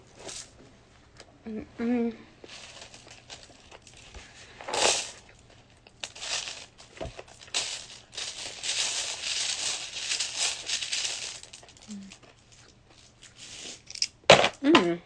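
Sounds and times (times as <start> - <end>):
plastic tiles rattling and clicking: 6.0 - 12.2.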